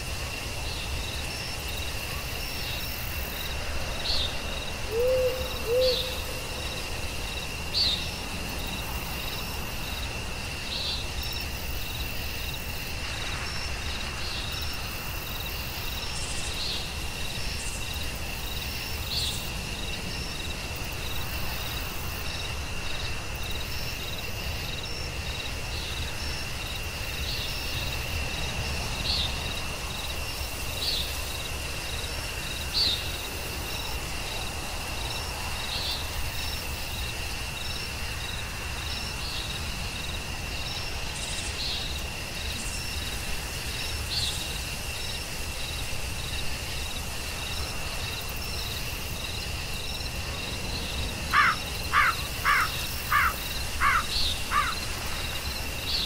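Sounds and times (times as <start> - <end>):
high insect trill: 0.0 - 56.0
owl hooting: 4.9 - 6.2, 51.4 - 54.8.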